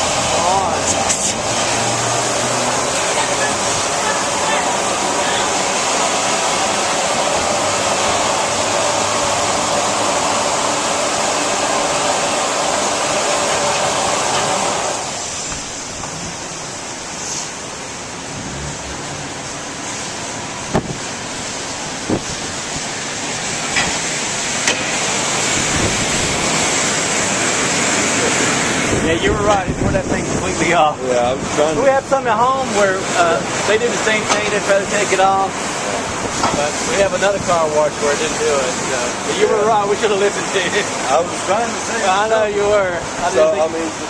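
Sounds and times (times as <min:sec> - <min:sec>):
car wash water spray: 0:00.0 - 0:44.0
sharp knocks on car: 0:20.7 - 0:21.0.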